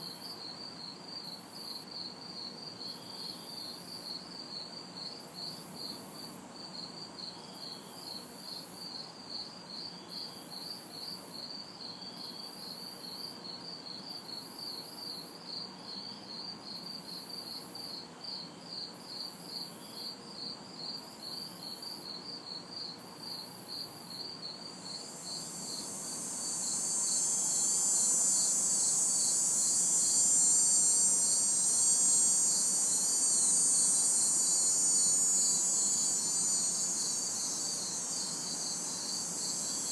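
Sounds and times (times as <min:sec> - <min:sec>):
crickets chirping: 0:00.0 - 0:39.9
loud cicada buzz: 0:20.8 - 0:39.9
pulsing insect trill: 0:23.2 - 0:39.9.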